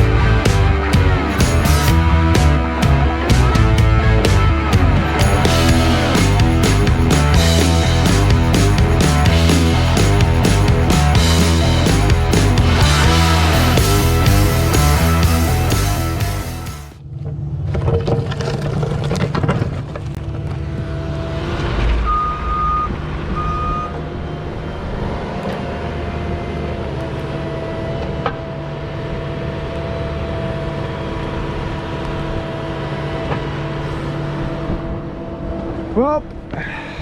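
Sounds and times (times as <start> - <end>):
excavator diesel engine running: 0.0 - 19.0, 19.8 - 37.0
short beeps: 22.0 - 24.0.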